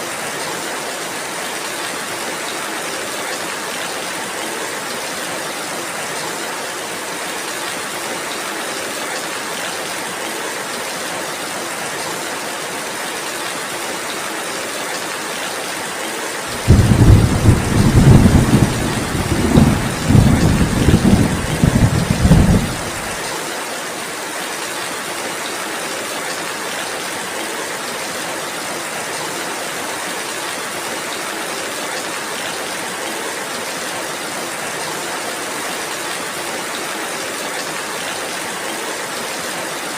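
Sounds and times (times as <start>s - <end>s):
thunder rumbling: 16.5s - 23.2s
rain hissing: 16.5s - 23.5s.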